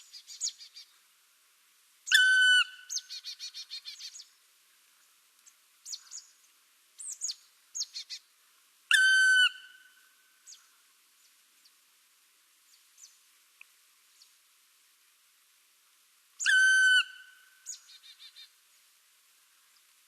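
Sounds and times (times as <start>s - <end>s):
loud clear bird whistle: 2.1s - 4.2s, 8.9s - 9.9s, 16.4s - 18.5s.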